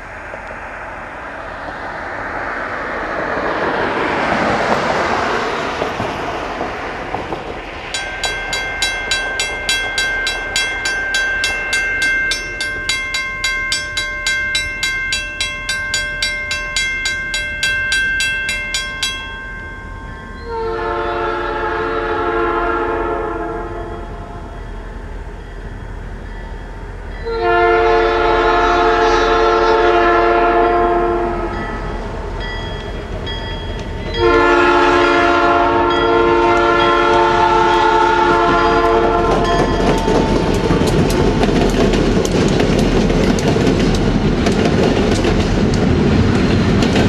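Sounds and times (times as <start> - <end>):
freight train rumbling: 0.0 - 47.0
bell ringing: 7.8 - 20.6, 31.5 - 34.3, 39.4 - 41.3
locomotive horn blast: 20.4 - 24.0, 27.2 - 31.6, 34.2 - 39.6.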